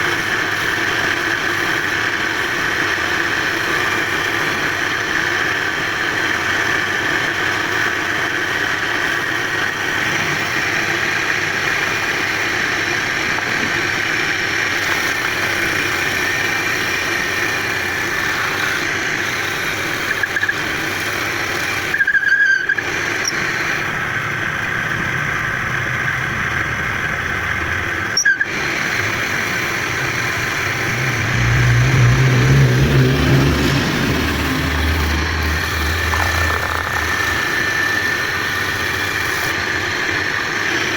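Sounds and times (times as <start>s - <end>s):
wood lathe squealing: 11.8s - 23.9s, 28.1s - 40.2s
deeper rumble: 30.0s - 39.5s.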